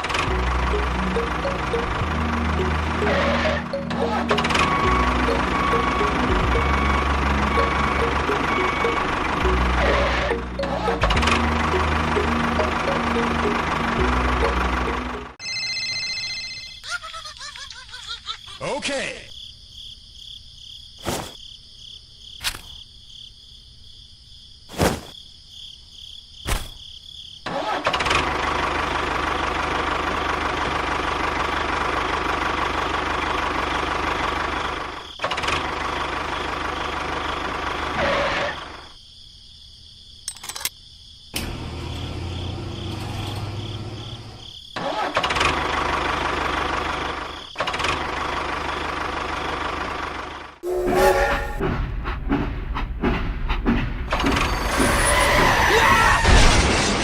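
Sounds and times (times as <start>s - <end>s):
motor running: 0.1s - 15.4s.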